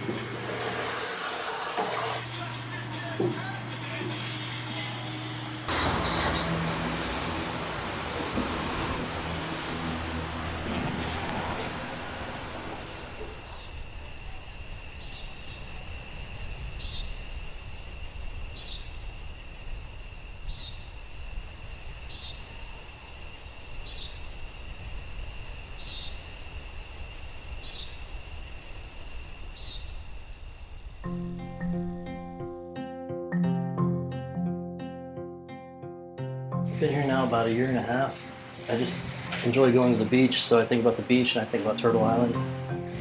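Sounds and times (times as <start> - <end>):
low rumble of wind or traffic: 5.7 - 31.4
high insect trill: 5.7 - 32.0.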